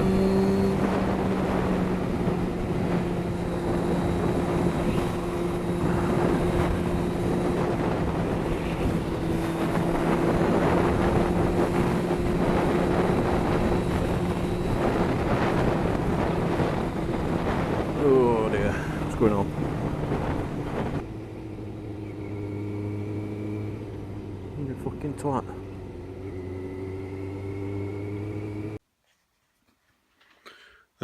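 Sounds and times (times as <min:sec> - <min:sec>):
wind noise on microphone: 0:00.0 - 0:21.2
motorcycle engine cruising: 0:00.0 - 0:28.8.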